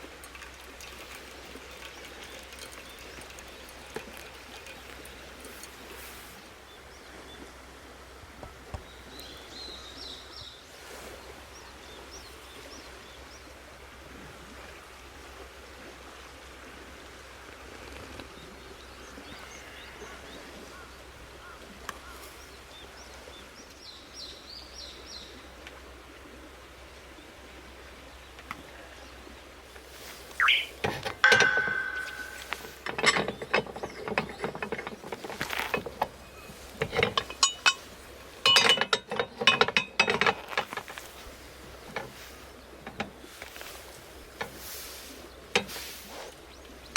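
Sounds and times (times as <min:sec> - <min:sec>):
bird chirping: 0:30.3 - 0:35.2
hard objects clattering: 0:30.8 - 0:37.9.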